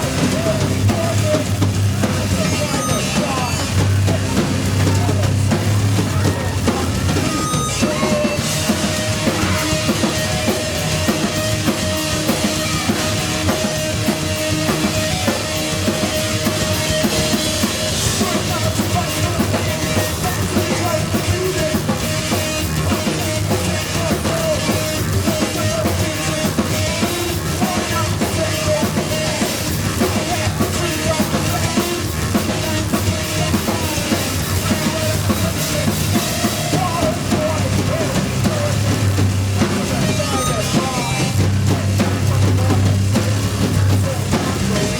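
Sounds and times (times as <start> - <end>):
bass guitar: 0.0 - 44.9
busy drum kit: 0.0 - 44.9
live rock band playing: 0.0 - 44.9
sustained high note: 2.3 - 3.8, 7.0 - 14.5.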